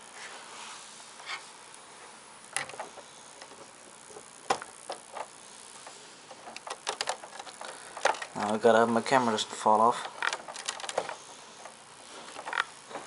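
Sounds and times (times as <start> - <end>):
hard plastic clicks and knocks: 6.4 - 8.4, 10.1 - 11.2.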